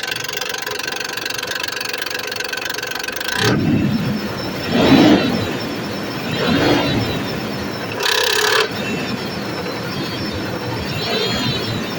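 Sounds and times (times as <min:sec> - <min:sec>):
engine ticking clatter: 0:00.0 - 0:11.9
low engine rumble: 0:03.2 - 0:11.9.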